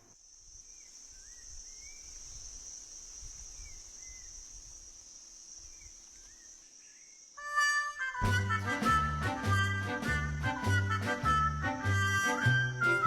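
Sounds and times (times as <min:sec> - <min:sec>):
insects chorus: 0:00.0 - 0:07.4
music: 0:07.4 - 0:13.0.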